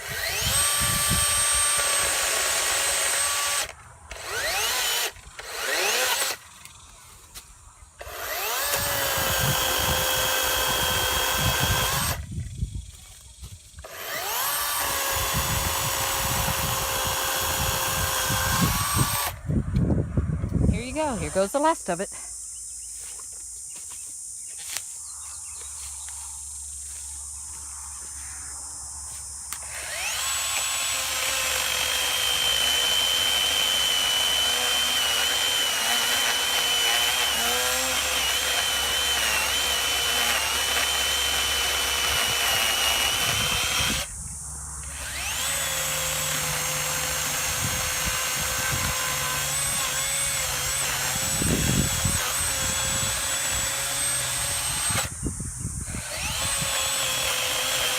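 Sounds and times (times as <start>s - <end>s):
electric chainsaw cutting wood: 0.0s - 6.8s, 8.0s - 12.3s, 13.7s - 19.4s, 29.5s - 44.2s, 44.8s - 55.2s, 55.8s - 57.9s.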